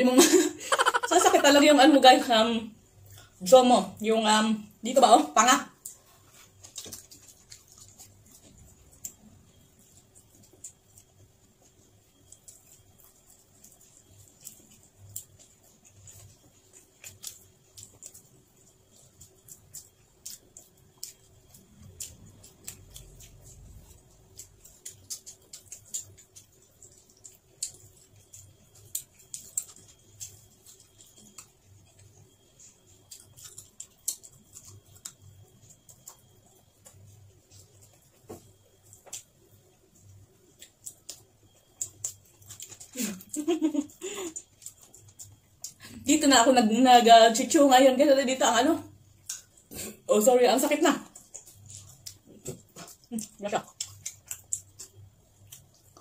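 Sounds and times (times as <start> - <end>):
chewing: 4.7 - 56.0
wet mouth clicks and smacks: 49.2 - 49.9, 51.1 - 56.0.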